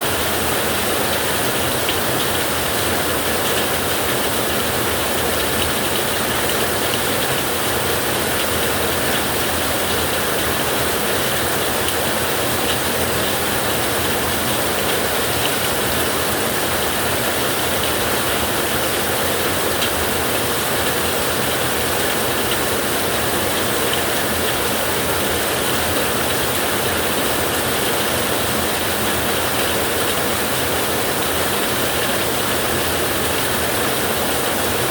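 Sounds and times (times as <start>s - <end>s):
heavy rain on a metal roof: 0.0s - 34.9s.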